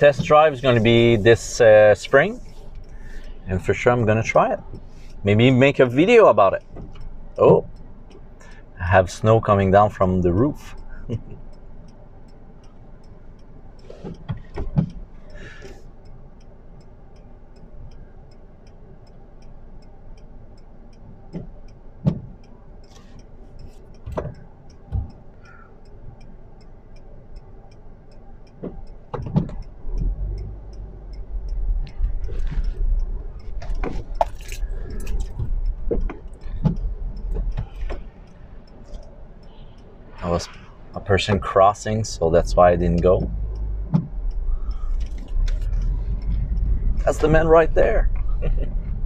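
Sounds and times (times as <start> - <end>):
car engine idling: 0.0 - 49.0
indicator ticking: 0.0 - 49.0
car rumbling over snowy road: 38.9 - 49.0.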